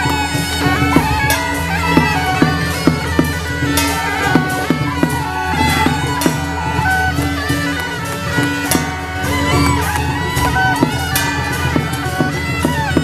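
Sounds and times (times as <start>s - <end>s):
double-reed horns playing melody: 0.0s - 13.0s
sharp percussion strikes: 0.0s - 13.0s.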